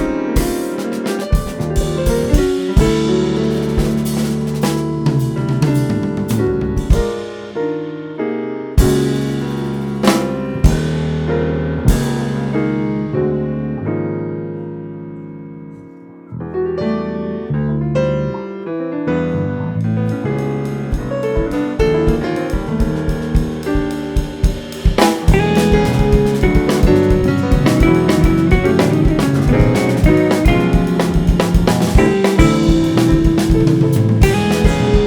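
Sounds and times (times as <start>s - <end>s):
sharp drum hits: 0.0s - 7.6s, 8.8s - 11.2s, 20.9s - 35.0s
bass: 0.0s - 7.8s, 8.8s - 35.0s
keyboard chords: 0.0s - 35.0s
piano: 0.0s - 35.0s.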